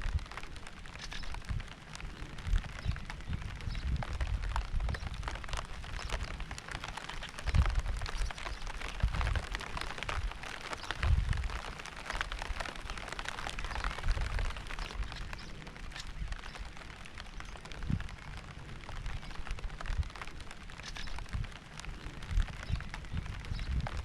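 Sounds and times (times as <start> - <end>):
raindrops striking close by: 0.0 - 24.0
steady rain: 0.0 - 24.0
deep low rumbles: 21.1 - 24.0.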